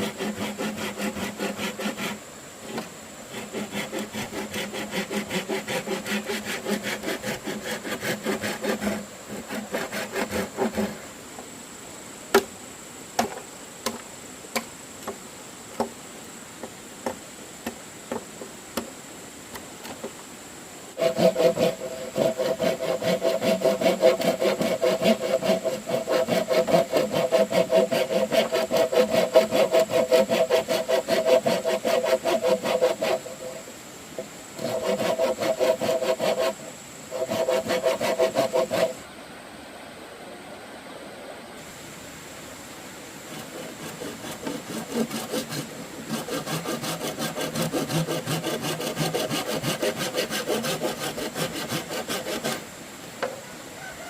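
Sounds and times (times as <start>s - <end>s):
saw cutting bamboo: 0.0s - 11.0s, 20.9s - 39.0s, 43.3s - 52.7s.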